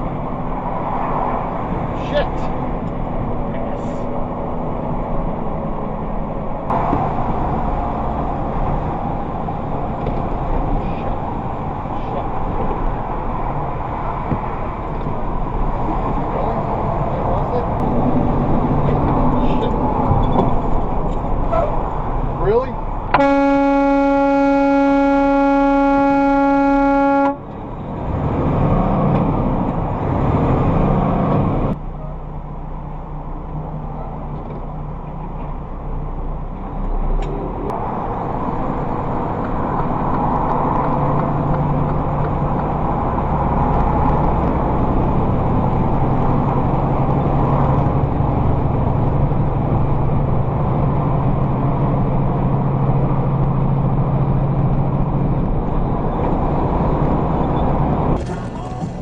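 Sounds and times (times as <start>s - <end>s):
vehicle road and engine noise: 0.0s - 59.0s
vehicle horn: 23.1s - 27.5s.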